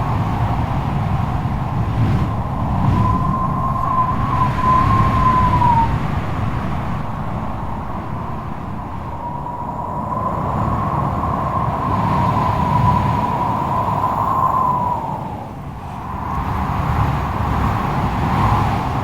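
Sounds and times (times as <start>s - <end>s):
gusting wind howling: 0.0s - 19.0s.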